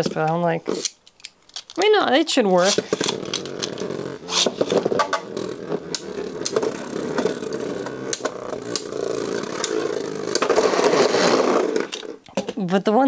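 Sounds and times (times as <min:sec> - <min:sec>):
spinning tops whirring: 0:02.6 - 0:12.2.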